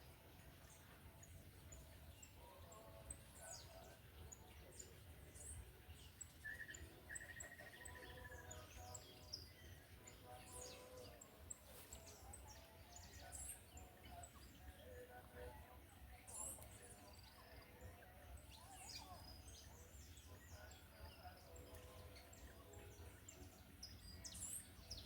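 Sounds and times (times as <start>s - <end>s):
birds chirping and whistling: 0.0s - 15.4s, 16.2s - 25.0s
bird trill: 0.6s - 15.1s.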